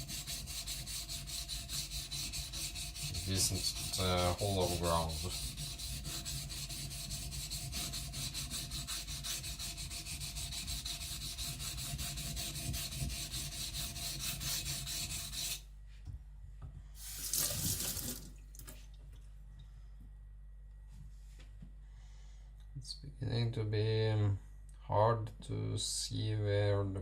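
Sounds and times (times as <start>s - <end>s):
blade scraping on wet whetstone: 0.0s - 15.6s.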